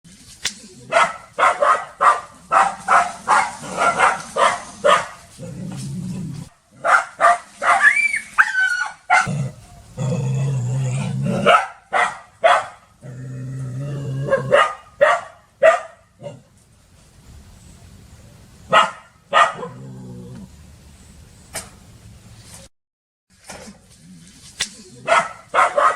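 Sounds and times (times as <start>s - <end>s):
dog barking sharply: 0.9s - 5.2s, 6.8s - 9.3s, 11.4s - 12.8s, 14.5s - 16.0s, 18.7s - 19.8s, 25.0s - 25.9s
dog growling low: 5.4s - 6.5s, 9.2s - 11.5s, 13.0s - 14.5s, 19.6s - 20.6s
dog yelping: 6.8s - 9.3s, 25.0s - 25.9s.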